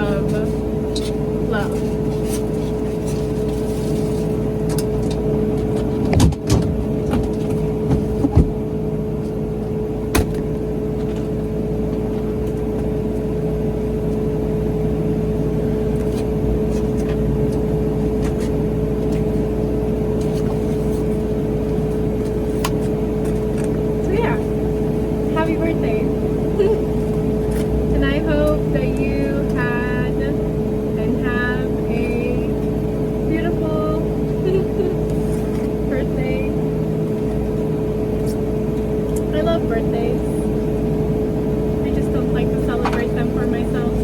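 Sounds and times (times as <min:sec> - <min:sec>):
motor vehicle running hum: 0:00.0 - 0:44.0.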